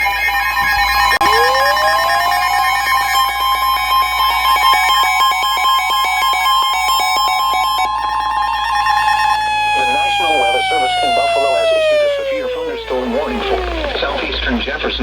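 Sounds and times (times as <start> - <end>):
radio warning alert tone: 8.8 - 15.0
faint radio crackle: 8.9 - 15.0.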